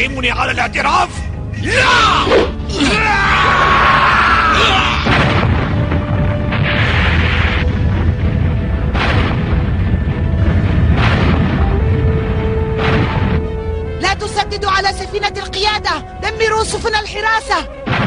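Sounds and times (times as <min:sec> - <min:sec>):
dramatic background music: 0:00.0 - 0:18.0
booming explosions: 0:04.8 - 0:14.0, 0:17.8 - 0:18.0
cannon blasts: 0:05.0 - 0:13.6.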